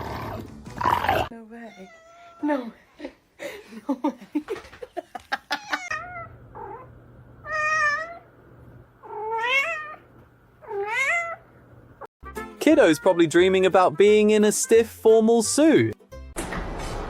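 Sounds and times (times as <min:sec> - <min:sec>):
cat meowing: 0:01.7 - 0:02.6, 0:05.6 - 0:08.3, 0:09.0 - 0:11.4.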